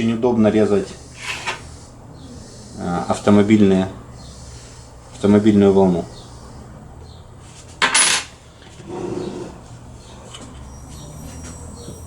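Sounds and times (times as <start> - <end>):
metal parts clattering: 7.8 - 8.3
faint high whine: 10.1 - 12.0.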